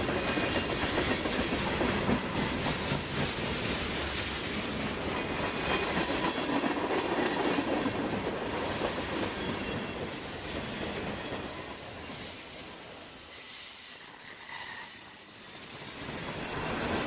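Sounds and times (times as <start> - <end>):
train wheels rumbling on rails: 0.0 - 17.0
high wheel squeal: 9.3 - 16.3.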